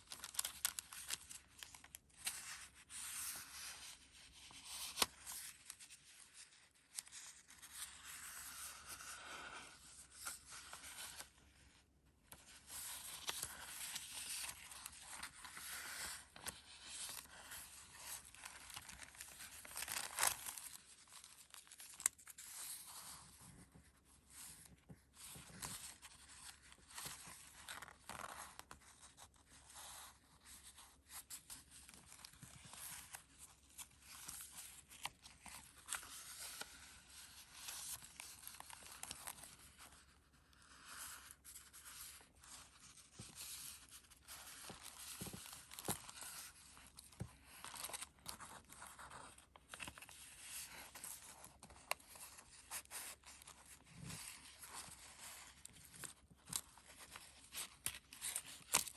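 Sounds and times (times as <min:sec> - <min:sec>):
paper pages rustling and crinkling: 0:00.0 - 0:58.9.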